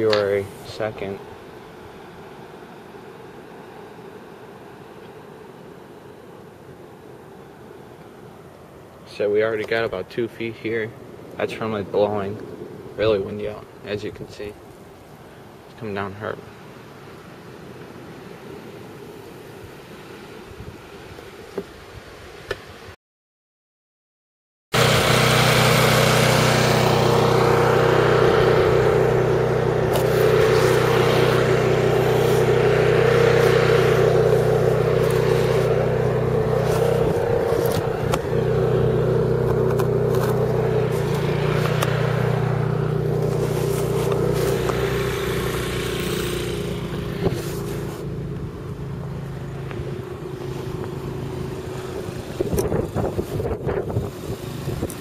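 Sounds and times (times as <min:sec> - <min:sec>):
vehicle engine running: 0:24.8 - 0:55.0.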